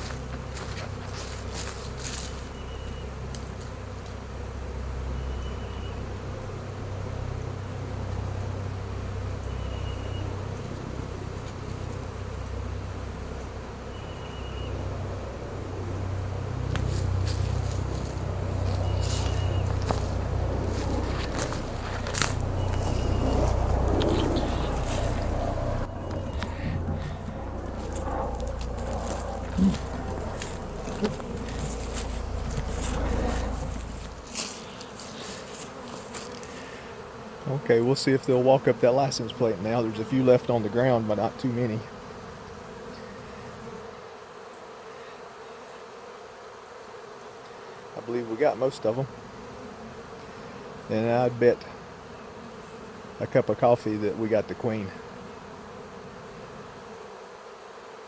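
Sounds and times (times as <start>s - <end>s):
bee swarm buzzing: 0.0s - 58.0s
low rumble: 20.0s - 34.3s.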